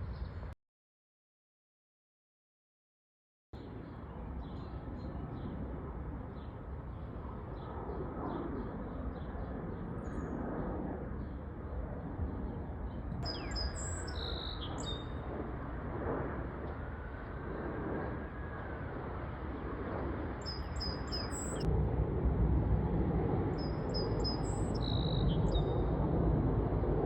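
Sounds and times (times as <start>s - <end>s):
steady low rumble: 3.6s - 27.0s
small birds chirping: 12.5s - 15.2s, 20.4s - 21.7s, 23.6s - 25.8s.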